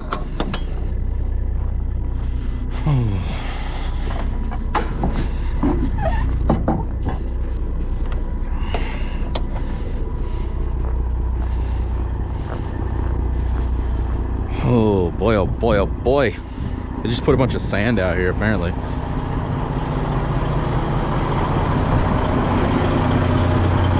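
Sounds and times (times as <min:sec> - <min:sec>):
sharp clicks and knocks: 0:00.0 - 0:00.8
diesel truck engine idling: 0:00.0 - 0:23.9.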